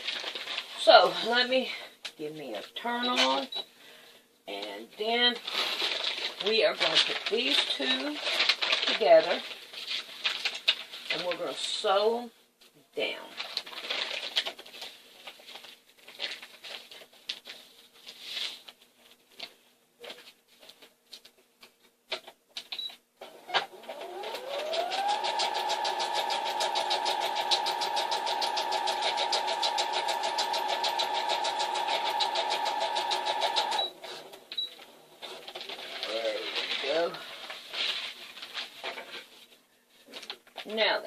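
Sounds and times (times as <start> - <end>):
sewing machine stitching: 23.6 - 34.2.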